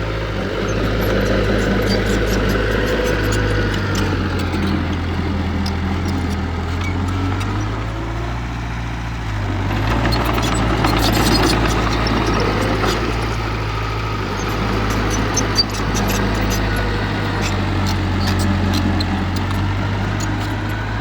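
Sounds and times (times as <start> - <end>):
heavy diesel engine running: 0.0 - 21.0
clanks and rattles: 9.8 - 13.5.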